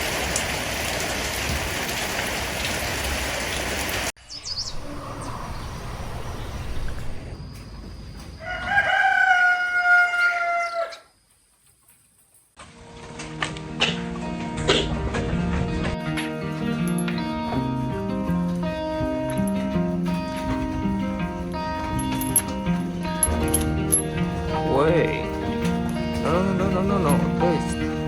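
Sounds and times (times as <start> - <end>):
rooster crowing: 8.2 - 11.2.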